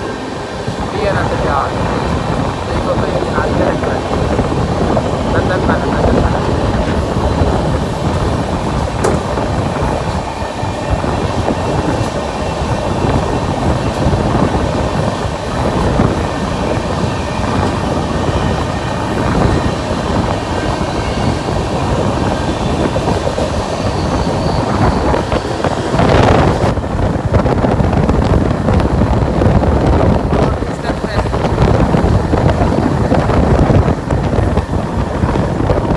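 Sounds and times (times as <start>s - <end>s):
train wheels rumbling on rail: 0.0s - 35.9s
rattling clatter: 8.4s - 10.1s.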